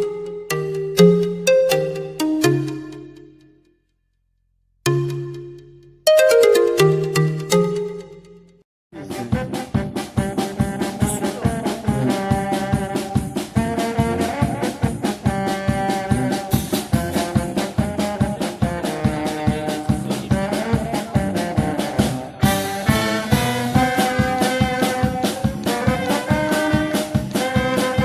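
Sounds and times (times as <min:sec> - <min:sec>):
upbeat swing jazz music: 0:09.0 - 0:28.0.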